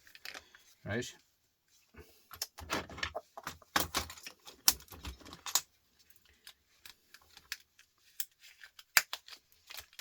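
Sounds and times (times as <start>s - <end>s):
small metallic clicks and rattles: 2.4s - 10.0s.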